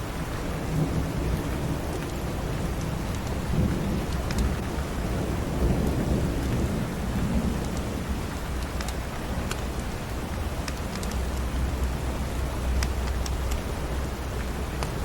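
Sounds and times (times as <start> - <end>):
steady rain: 0.0 - 15.0
distant thunder rumbling: 0.5 - 8.4.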